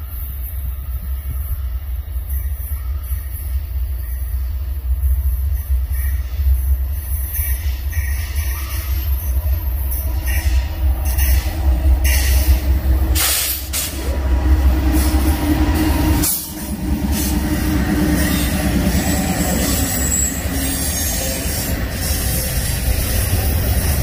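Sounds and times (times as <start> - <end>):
freight train rumbling past: 0.0 - 24.0
wheels on rail: 0.0 - 24.0.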